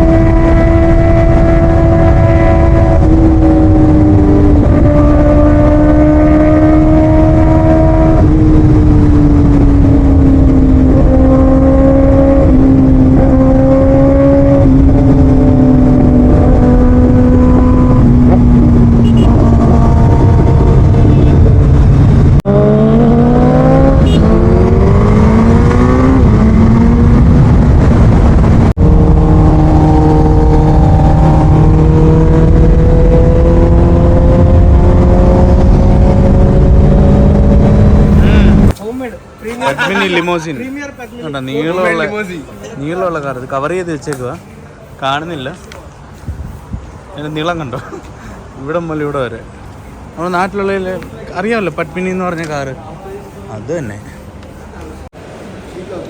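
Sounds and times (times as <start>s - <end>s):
wind rumble: 0.0s - 38.8s, 45.9s - 47.2s.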